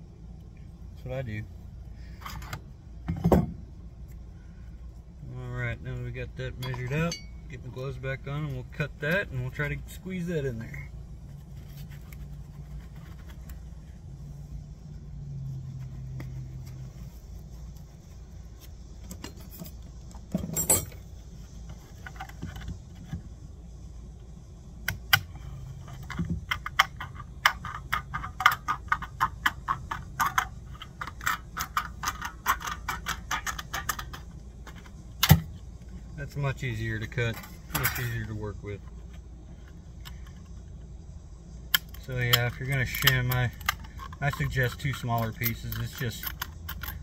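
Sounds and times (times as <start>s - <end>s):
low steady hum: 0.0s - 47.0s
metal clatter: 19.1s - 21.1s.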